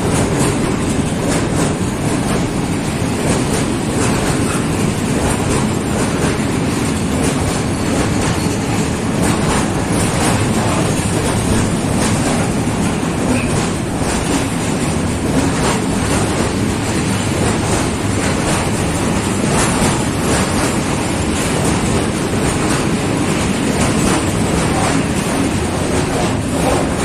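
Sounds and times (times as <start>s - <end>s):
train rumbling past: 0.0s - 27.0s
wheels clacking over rail joints: 0.0s - 27.0s.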